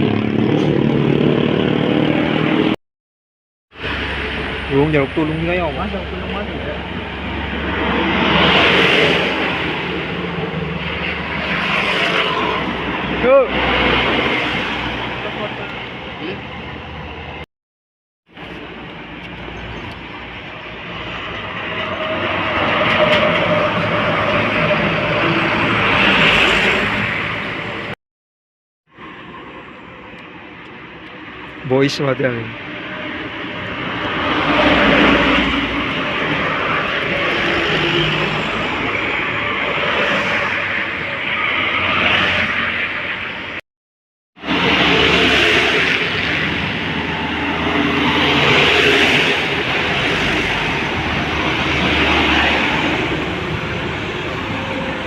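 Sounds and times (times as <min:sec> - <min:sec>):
heavy vehicle passing: 0:03.8 - 0:17.4, 0:20.7 - 0:28.0, 0:44.4 - 0:55.0.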